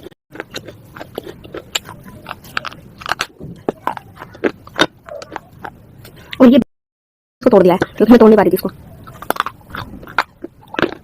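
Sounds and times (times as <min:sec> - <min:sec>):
crunching hard pieces: 0:00.0 - 0:05.8, 0:09.1 - 0:11.0.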